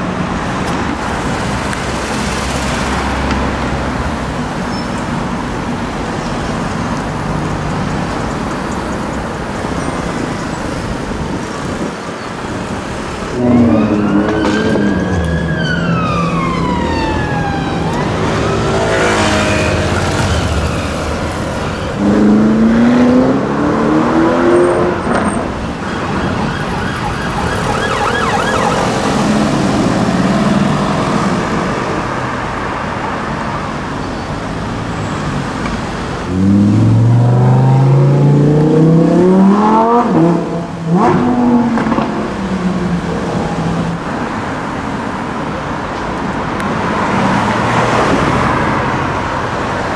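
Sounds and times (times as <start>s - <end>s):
car engines revving: 0.0s - 49.9s
city traffic: 0.0s - 49.9s
siren wailing: 13.3s - 21.9s, 25.6s - 29.9s.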